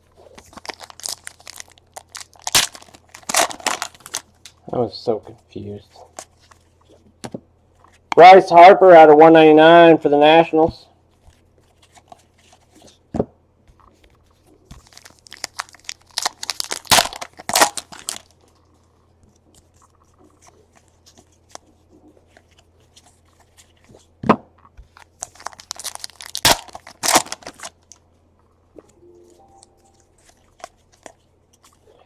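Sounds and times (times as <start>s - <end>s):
card wrappers tearing and crinkling: 0.2s - 4.6s, 14.3s - 18.7s, 24.9s - 28.0s, 29.3s - 31.8s.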